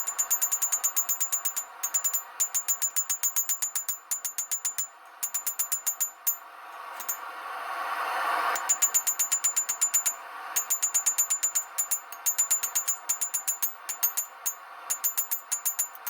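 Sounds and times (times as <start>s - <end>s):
hammer blows on steel: 8.6s - 16.0s.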